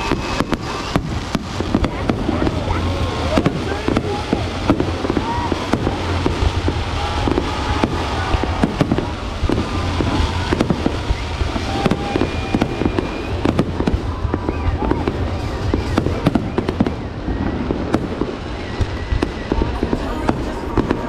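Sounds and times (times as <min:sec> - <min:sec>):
fireworks bangs: 0:00.0 - 0:21.0
low rumble: 0:00.0 - 0:21.0.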